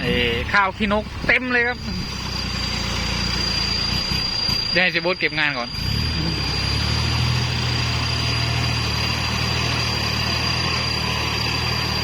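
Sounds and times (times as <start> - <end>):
tractor diesel engine running: 0.0 - 12.0
thin high whine: 1.6 - 7.1.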